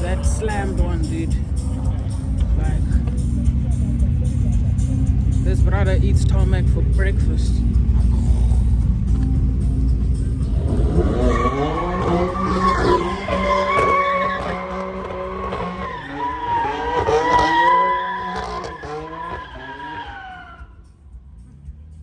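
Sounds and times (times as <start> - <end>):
car engine revving: 0.0 - 22.0
tyres squealing: 10.9 - 20.6.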